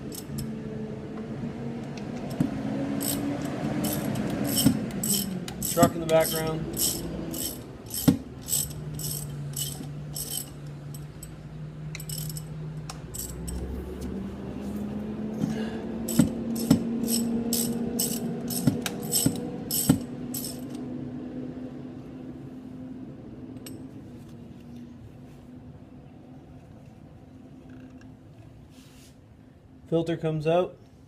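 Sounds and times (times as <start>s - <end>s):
ratchet wrench clicking: 0.0s - 0.5s, 3.0s - 13.7s, 16.1s - 20.8s
truck engine droning: 0.0s - 23.8s.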